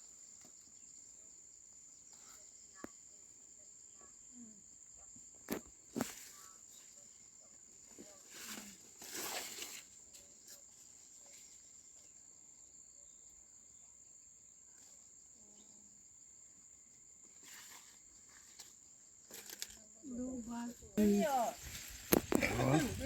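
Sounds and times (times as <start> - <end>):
high-pitched insect trill: 0.0 - 23.0
rustling noise: 8.0 - 10.3, 21.0 - 23.0.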